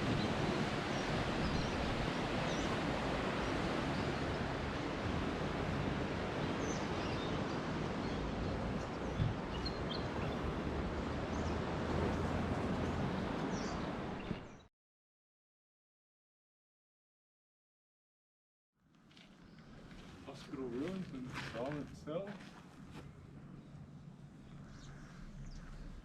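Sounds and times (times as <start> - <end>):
distant surf: 0.0 - 14.6, 19.5 - 26.0
wind: 0.0 - 14.7, 18.8 - 26.0
small birds chirping: 6.4 - 10.6, 12.8 - 14.7, 23.6 - 26.0.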